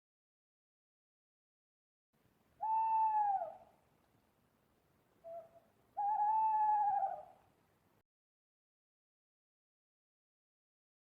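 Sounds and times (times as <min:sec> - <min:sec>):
owl hooting: 0:02.6 - 0:03.8, 0:05.2 - 0:07.4.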